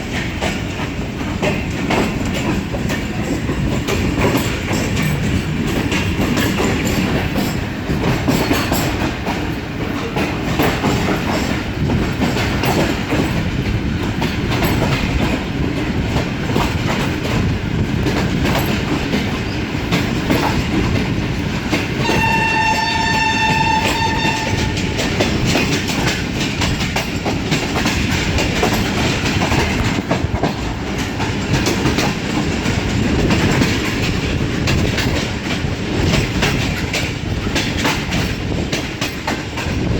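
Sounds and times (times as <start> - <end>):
train wheels clattering over rails: 0.0 - 39.9
train horn: 22.0 - 25.3.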